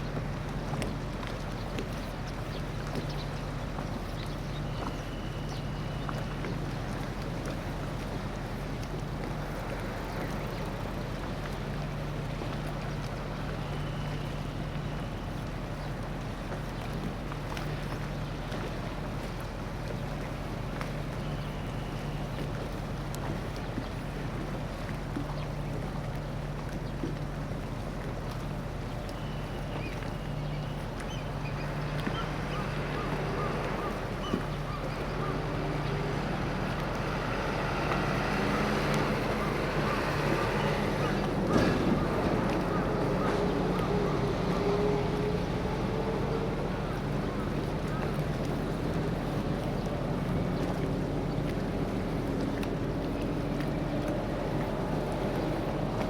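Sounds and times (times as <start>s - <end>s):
water rushing: 0.0s - 56.0s
wind: 0.0s - 56.0s
low engine drone: 20.1s - 56.0s.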